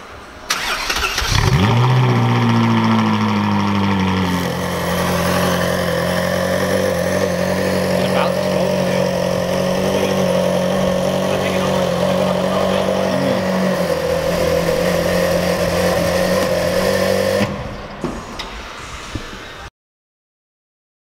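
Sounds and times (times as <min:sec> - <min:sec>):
car engine idling: 0:00.5 - 0:18.0.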